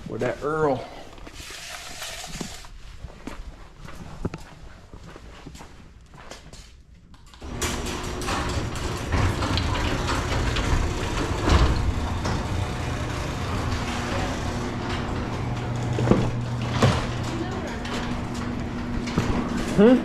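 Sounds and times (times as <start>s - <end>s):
machine humming: 7.5s - 19.9s.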